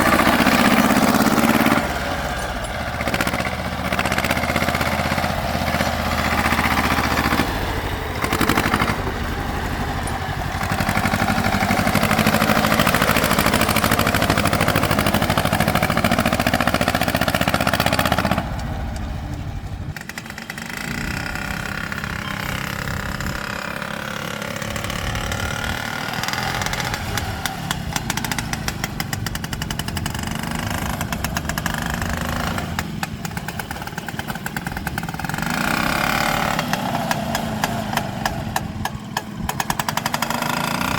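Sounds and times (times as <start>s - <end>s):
tractor engines running: 0.0s - 40.9s.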